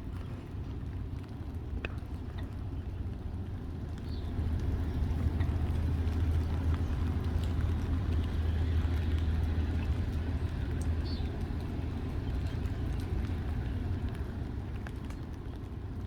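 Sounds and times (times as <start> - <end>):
outdoor noise: 0.0 - 16.0
large engine droning: 3.3 - 15.6.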